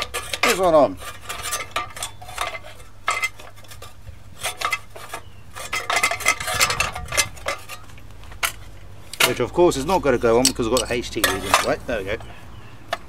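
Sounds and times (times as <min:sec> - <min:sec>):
sheet metal clinking and rattling: 0:04.4 - 0:12.1.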